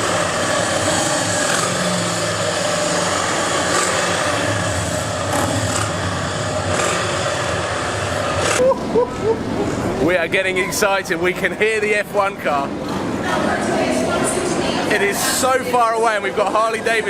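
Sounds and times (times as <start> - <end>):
motorcycle engines idling: 0.0 - 10.2
outdoor background noise: 0.0 - 17.0.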